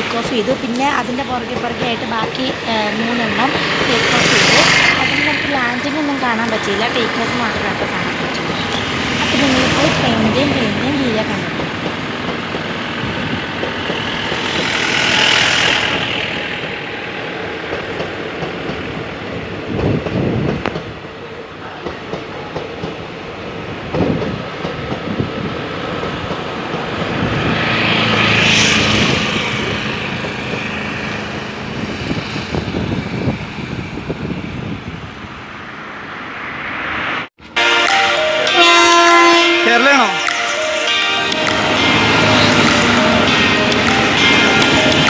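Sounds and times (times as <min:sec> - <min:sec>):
train wheels rumbling over rail joints: 0:00.0 - 0:35.8.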